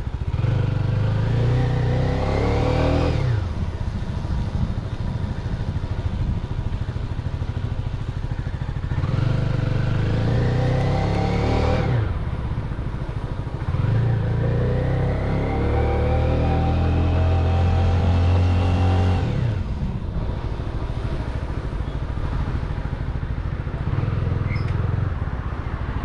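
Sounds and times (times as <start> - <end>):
motorcycle engine revving: 0.0 - 3.8, 7.4 - 12.3, 13.4 - 20.3.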